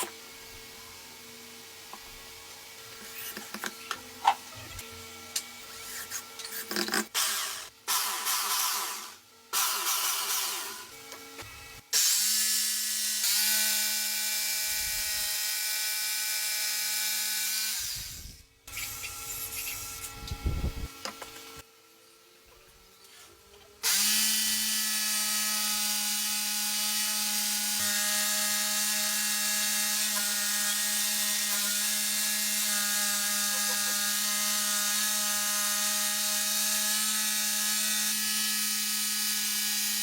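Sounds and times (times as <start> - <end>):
electric jigsaw cutting wood: 6.6 - 21.6, 23.8 - 40.0.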